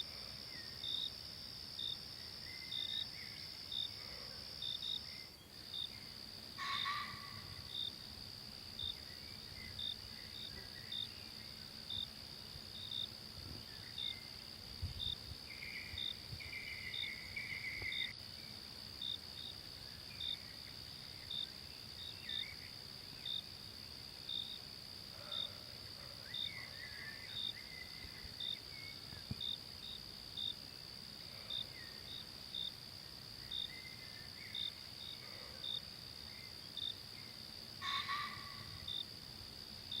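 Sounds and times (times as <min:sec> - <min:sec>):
insect chirp: 0:00.0 - 0:40.0
faint bird calls: 0:06.6 - 0:07.7, 0:37.8 - 0:38.9.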